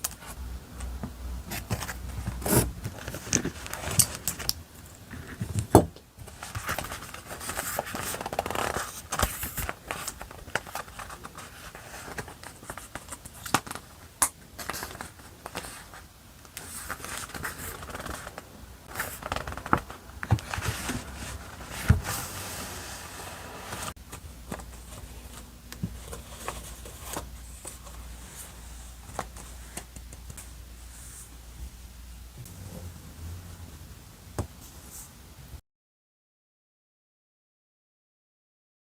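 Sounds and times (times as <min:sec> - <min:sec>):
paper rustling and scraping: 0:01.5 - 0:04.5, 0:05.1 - 0:13.8, 0:16.6 - 0:30.0.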